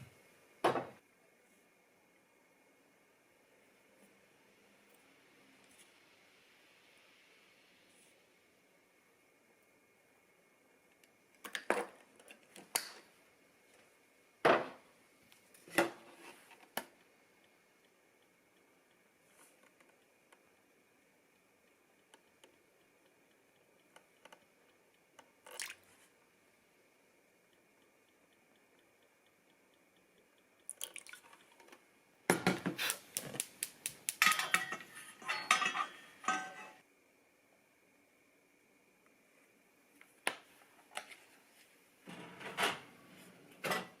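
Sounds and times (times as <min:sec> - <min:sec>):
kitchenware knocks and clinks: 0:34.2 - 0:36.8.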